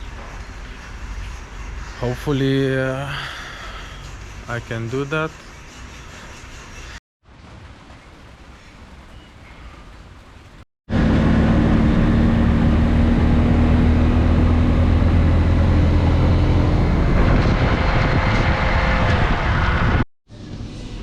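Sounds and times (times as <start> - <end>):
vehicle engine running: 10.9 - 20.0.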